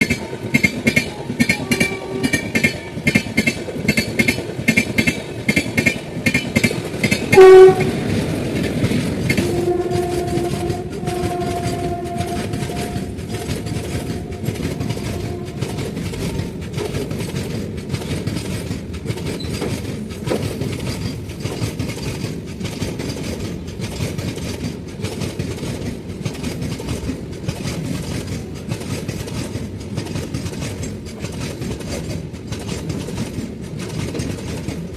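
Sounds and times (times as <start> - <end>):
train rumble: 0.0 - 34.9
train wheels clattering on rails: 0.0 - 34.9
locomotive horn: 0.2 - 3.0, 7.3 - 8.2, 9.3 - 16.9.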